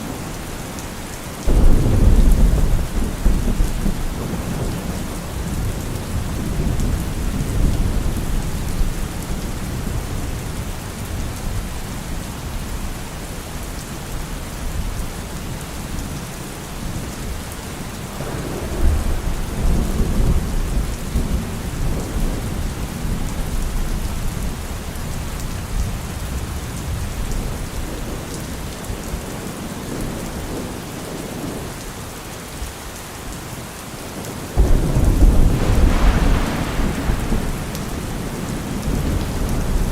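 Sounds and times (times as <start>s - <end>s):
rain falling on trees: 0.0s - 39.9s
low rolling thunder: 1.4s - 12.8s, 18.2s - 29.2s, 34.6s - 39.9s.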